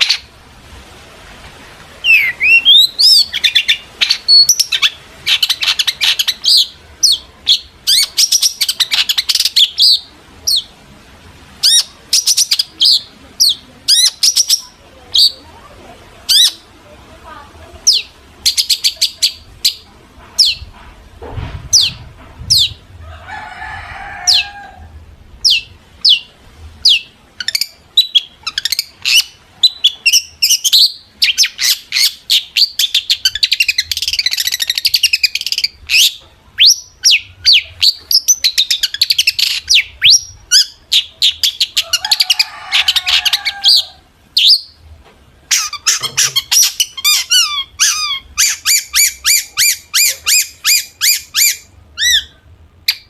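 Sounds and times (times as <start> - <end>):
harsh bird chattering: 0.0 - 0.3, 2.0 - 10.7, 11.6 - 15.5, 16.2 - 16.7, 17.8 - 20.8, 25.4 - 44.8, 45.5 - 53.0
shrike singing: 2.0 - 10.7.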